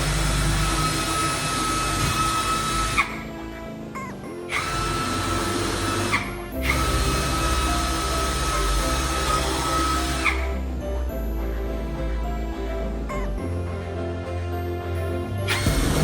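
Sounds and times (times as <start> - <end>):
power tool motor whining: 0.0 - 3.4, 4.5 - 10.7, 15.5 - 16.0
background music: 0.0 - 16.0.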